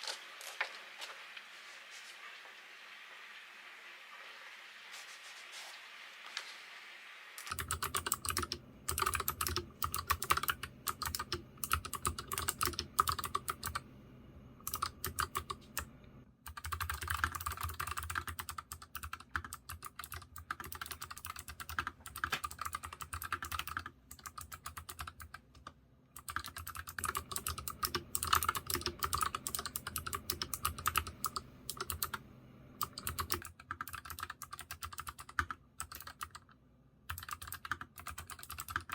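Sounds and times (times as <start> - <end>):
fast mechanical keyboard typing: 7.4 - 13.8, 14.6 - 15.9, 16.5 - 32.2, 32.8 - 38.9.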